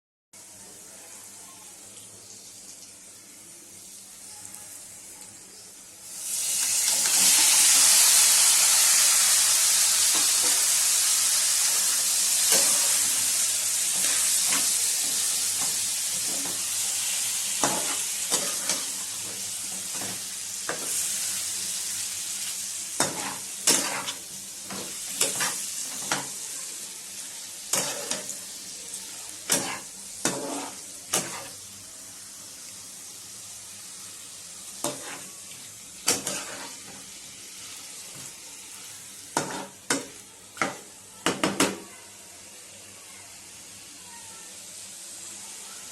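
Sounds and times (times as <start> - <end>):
chicken frying in hot oil: 0.4 - 45.9
utensil scraping a pan: 23.0 - 26.3, 29.5 - 31.6, 36.0 - 37.0.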